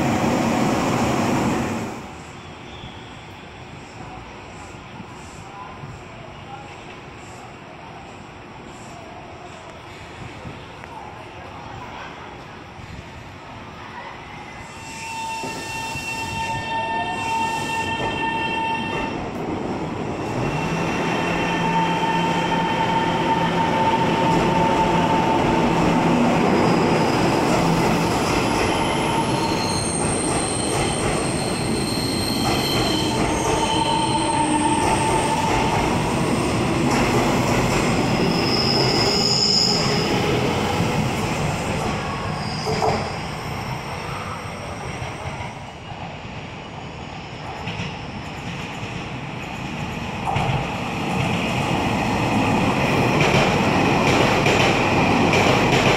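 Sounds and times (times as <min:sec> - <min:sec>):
train wheel-and-rail noise: 0:00.0 - 0:55.9
high-pitched wheel squeal: 0:28.7 - 0:35.4, 0:38.2 - 0:40.2.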